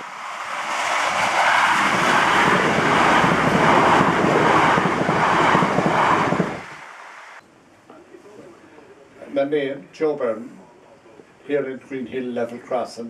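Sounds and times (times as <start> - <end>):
train wheels rushing and clattering: 0.0 - 6.9.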